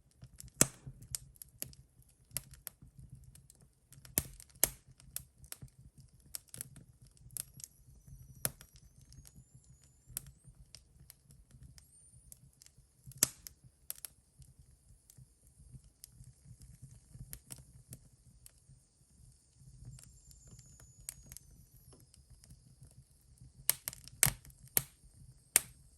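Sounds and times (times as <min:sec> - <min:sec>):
wood fire crackling and popping: 0:00.1 - 0:07.7, 0:08.4 - 0:09.3, 0:10.1 - 0:18.6, 0:22.8 - 0:25.9
faint thin whistle: 0:07.2 - 0:13.6, 0:15.1 - 0:25.9.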